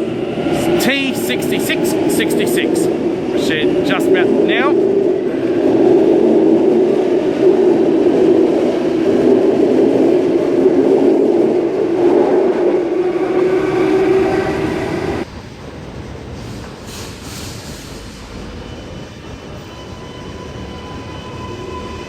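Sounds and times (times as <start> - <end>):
high rising whine: 0.0 - 15.2.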